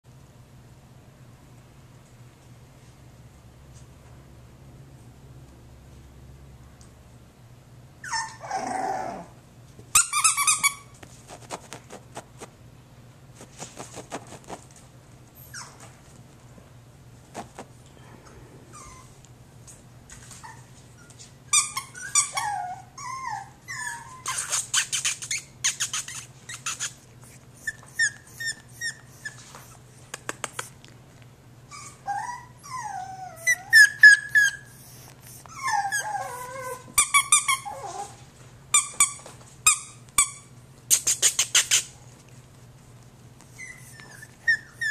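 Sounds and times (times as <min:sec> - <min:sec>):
puppy whining and yipping: 0:08.0 - 0:09.4, 0:15.4 - 0:15.9, 0:18.7 - 0:19.2, 0:20.3 - 0:27.0, 0:27.6 - 0:29.8, 0:31.7 - 0:38.2, 0:43.4 - 0:44.9.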